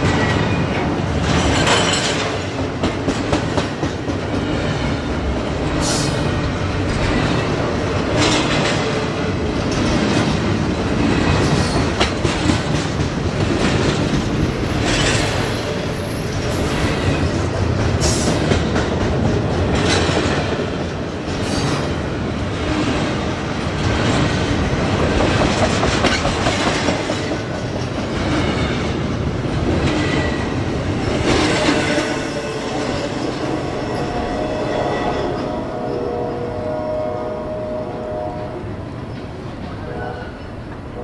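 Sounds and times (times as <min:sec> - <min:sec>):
wheels clicking over rail joints: 0:00.0 - 0:05.4, 0:06.7 - 0:21.6, 0:22.4 - 0:33.4
freight train wheels rumbling: 0:00.0 - 0:41.0.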